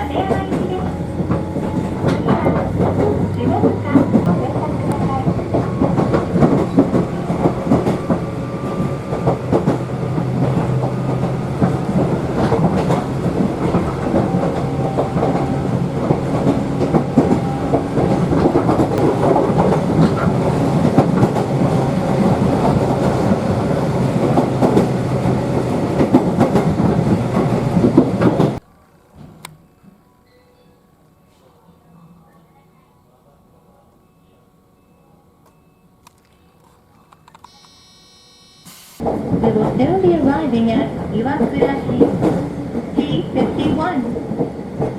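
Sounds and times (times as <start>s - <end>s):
train wheels clattering over track: 0.0s - 28.6s, 39.0s - 44.9s
low hum of electric train: 0.0s - 44.9s.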